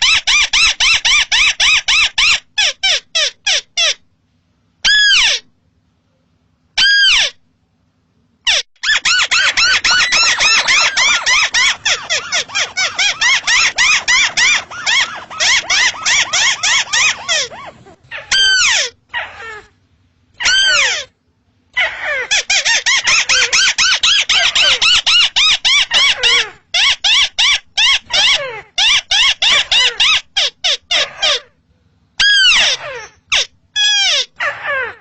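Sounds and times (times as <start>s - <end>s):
rail bird harsh chattering calls: 8.5s - 19.6s, 21.8s - 31.5s.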